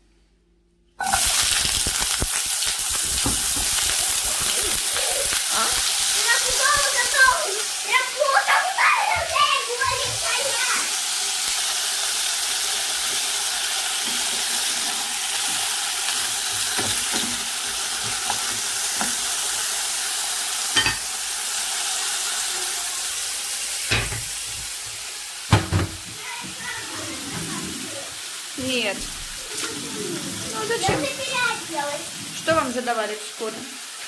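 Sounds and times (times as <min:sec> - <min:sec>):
potatoes sizzling in oil: 0:01.0 - 0:34.0
utensil knocking pan: 0:25.5 - 0:26.2.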